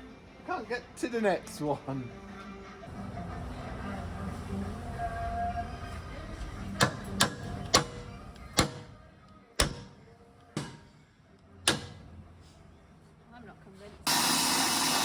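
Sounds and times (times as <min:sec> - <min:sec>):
sharp knocks on metal: 0:09.6 - 0:10.0, 0:10.6 - 0:10.9, 0:11.7 - 0:12.0.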